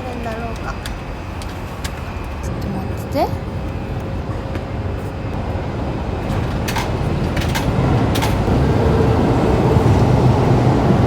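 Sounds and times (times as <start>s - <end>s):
loud low rumble: 5.4s - 11.0s.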